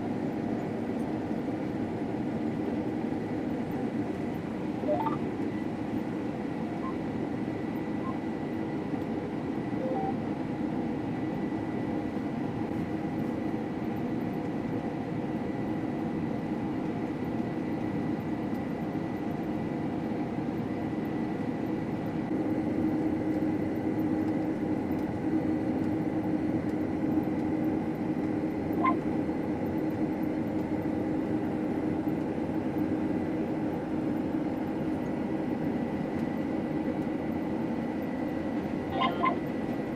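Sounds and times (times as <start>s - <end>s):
combine harvester drone: 0.0s - 39.9s
thin high whine: 4.8s - 5.4s.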